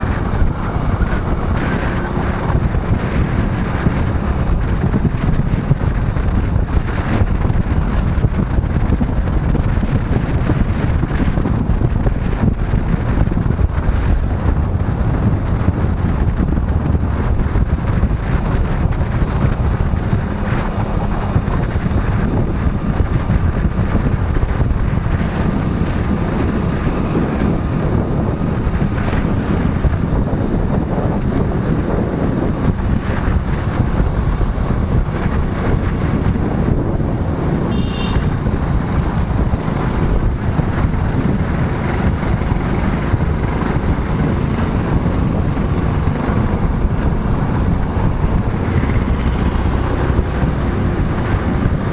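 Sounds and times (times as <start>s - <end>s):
motorcycle engine and road noise: 0.0s - 51.9s
wind buffeting microphone: 0.0s - 51.9s.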